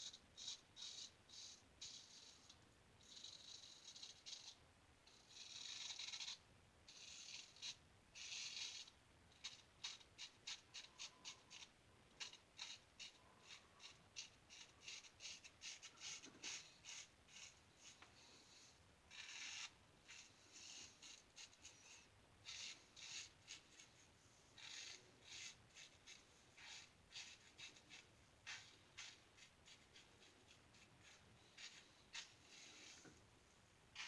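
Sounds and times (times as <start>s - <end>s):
razor scraping stubble: 24.6s - 33.1s.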